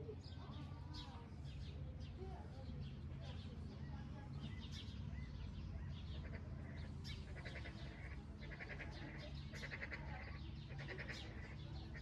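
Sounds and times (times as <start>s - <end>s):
low background rumble: 0.0s - 12.0s
birds bleating calls: 6.1s - 12.0s.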